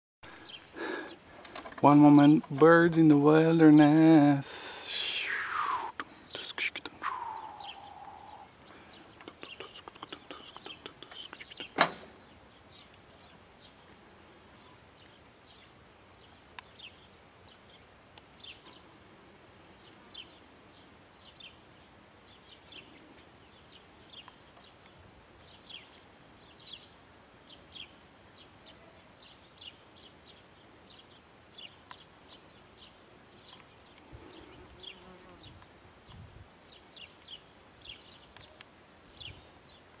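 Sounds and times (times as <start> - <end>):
faint steady hiss: 0.2 - 40.0
small birds chirping: 0.2 - 40.0
thin high tone: 7.0 - 8.5
sharp click: 11.6 - 12.1.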